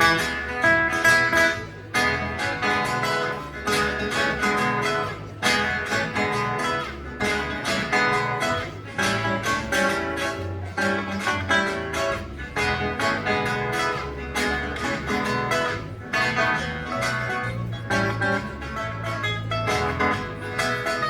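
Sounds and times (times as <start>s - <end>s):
guitar ensemble playing rock and roll: 0.0s - 21.0s.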